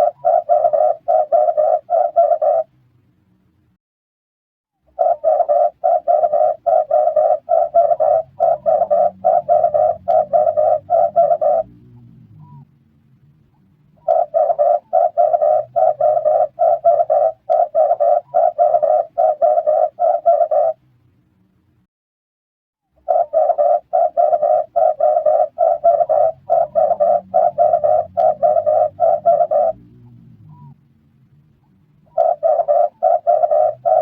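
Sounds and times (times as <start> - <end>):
dove cooing: 0.0 - 2.7, 4.9 - 12.6, 14.0 - 20.8, 23.0 - 30.8, 32.0 - 34.0.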